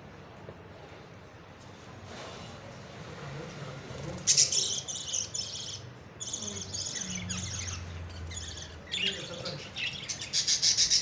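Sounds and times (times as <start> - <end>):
parrots chirping: 4.2 - 11.0.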